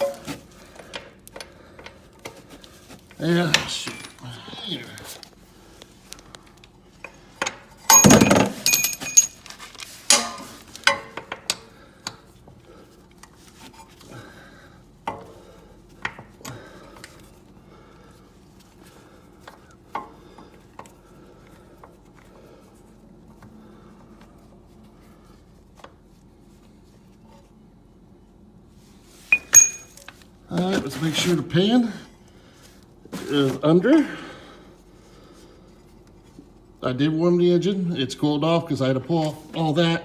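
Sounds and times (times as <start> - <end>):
metal hand tools clattering: 7.9 - 9.5, 29.3 - 30.0.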